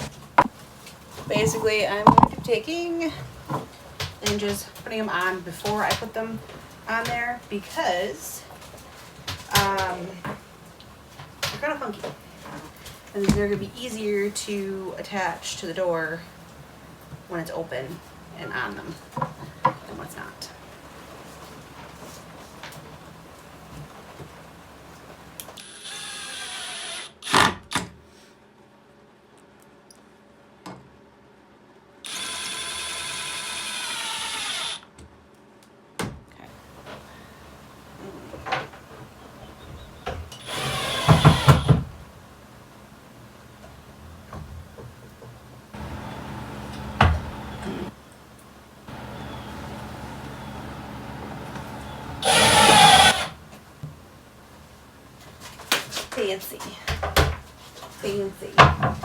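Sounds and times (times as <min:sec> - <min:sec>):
power drill running: 0:25.6 - 0:27.4, 0:32.0 - 0:34.8, 0:40.4 - 0:41.8, 0:45.8 - 0:47.9, 0:48.9 - 0:53.4.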